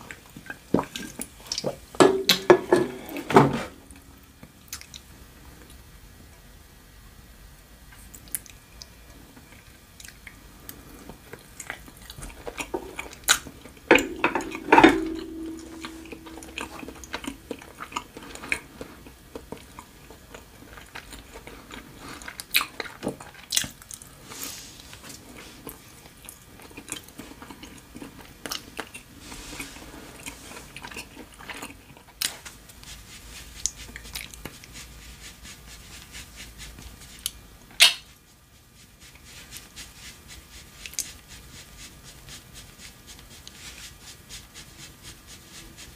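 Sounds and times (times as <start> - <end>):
ceramic dish knocked and ringing: 13.9 - 17.4
chewing and biting food: 17.2 - 24.1.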